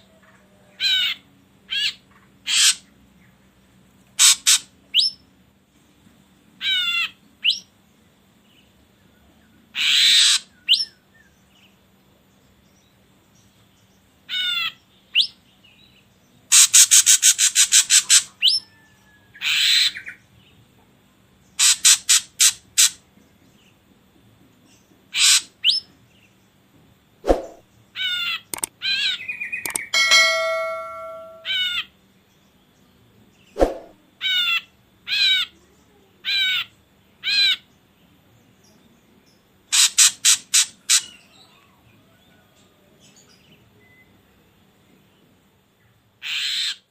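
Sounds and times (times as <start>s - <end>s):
bird calling with trills and whistles: 27.4s - 31.8s.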